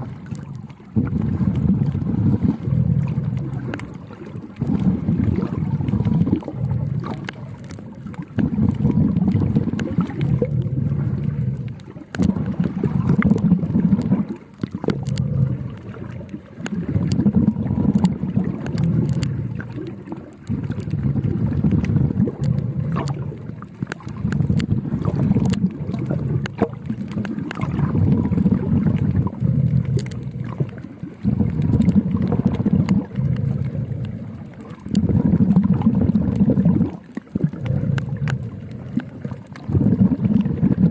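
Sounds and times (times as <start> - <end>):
underwater breathing bubbles: 0.0 - 40.9
small clicks: 3.3 - 4.8, 6.3 - 8.9, 11.6 - 30.9, 36.2 - 39.7.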